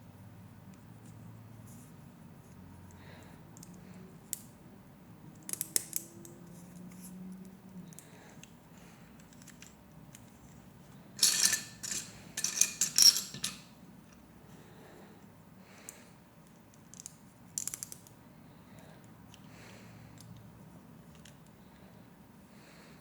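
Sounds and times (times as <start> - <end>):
plastic pieces clicking: 16.8 - 18.1.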